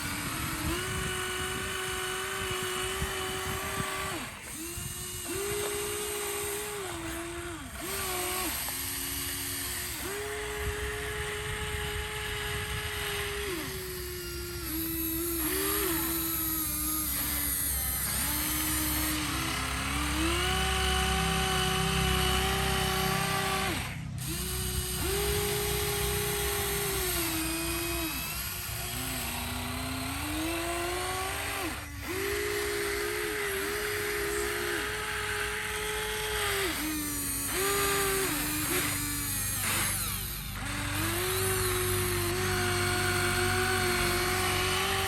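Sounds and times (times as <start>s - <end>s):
toy electric motors whining: 0.0s - 45.0s.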